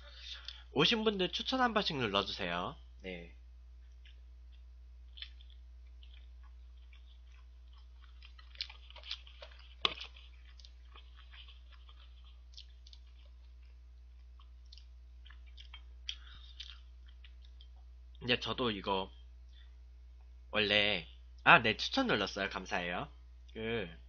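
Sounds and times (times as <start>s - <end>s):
steady low hum: 0.0s - 24.0s
person chewing: 3.8s - 18.2s
mouth clicks and smacks: 14.4s - 17.9s.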